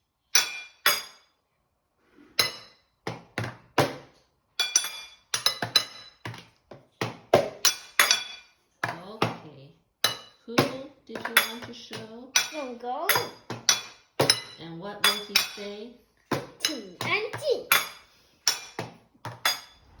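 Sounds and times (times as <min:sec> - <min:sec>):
utensils clinking glassware: 0:02.4 - 0:02.8, 0:04.6 - 0:06.3, 0:07.6 - 0:08.6, 0:10.0 - 0:10.4, 0:11.1 - 0:15.8, 0:16.6 - 0:20.0.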